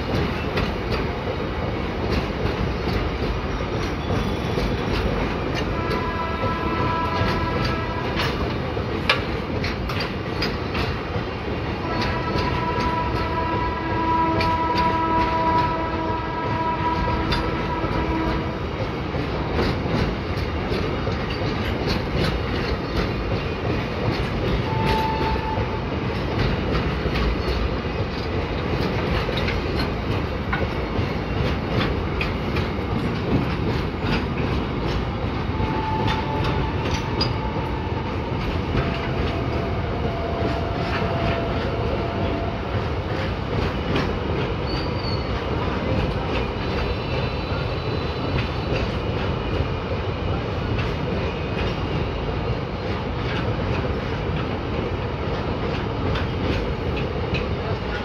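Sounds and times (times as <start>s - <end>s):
freight train wagons rolling: 0.0s - 58.0s
wheels clickety-clack: 0.0s - 58.0s
train horn: 5.5s - 8.6s, 11.8s - 18.8s, 24.6s - 25.9s, 35.5s - 43.0s.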